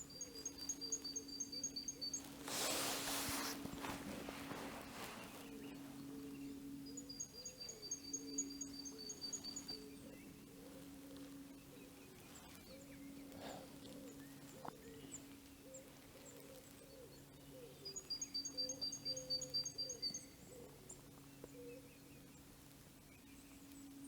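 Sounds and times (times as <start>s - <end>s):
songbird calling high notes: 0.0s - 15.3s
steady low hum: 0.0s - 24.0s.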